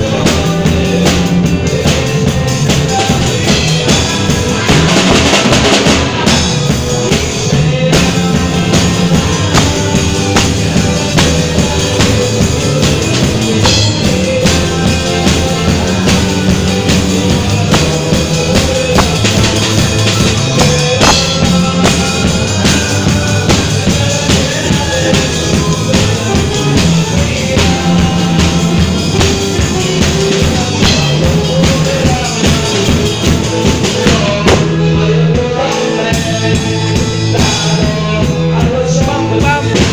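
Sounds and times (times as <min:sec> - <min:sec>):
drum kit beat: 0:00.0 - 0:39.9
live band playing: 0:00.0 - 0:39.9
sustained bass notes: 0:00.0 - 0:39.9.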